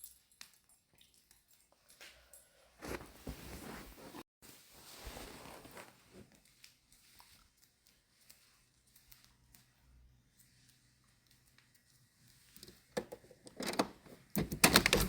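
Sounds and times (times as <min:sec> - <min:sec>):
faint rustling: 0:02.8 - 0:11.6.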